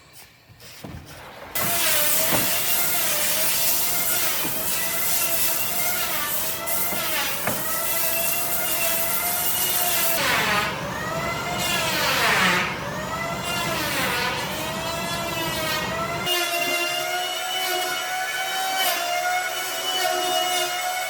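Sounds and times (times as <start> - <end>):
power tool motor cutting wood: 0.2 - 21.0.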